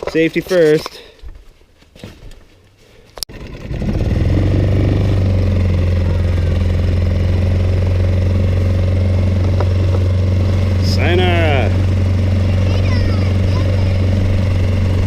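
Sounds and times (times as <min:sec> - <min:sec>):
outboard motor humming: 0:03.3 - 0:15.0.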